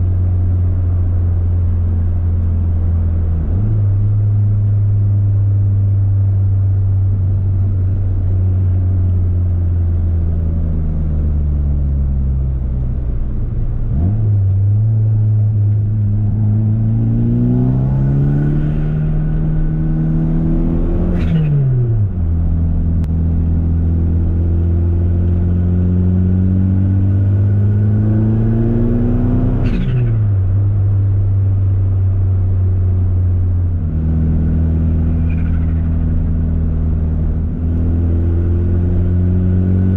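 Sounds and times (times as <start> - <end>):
turbocharged car engine revving: 13.8 - 30.6.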